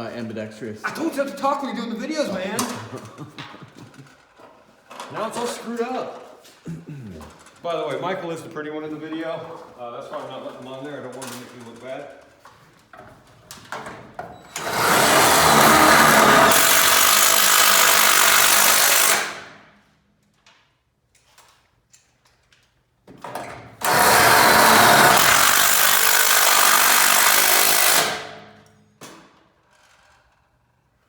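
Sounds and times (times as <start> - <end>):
cordless power drill running: 14.5 - 19.5, 23.8 - 28.4.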